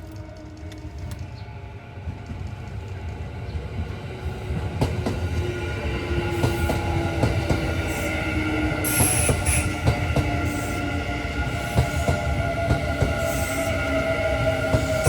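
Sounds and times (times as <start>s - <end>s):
electric train approaching: 0.0s - 15.0s.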